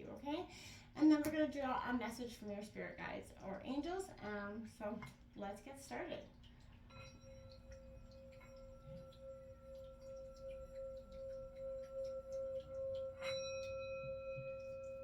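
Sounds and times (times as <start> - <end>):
singing bowl ringing: 6.9 - 15.0.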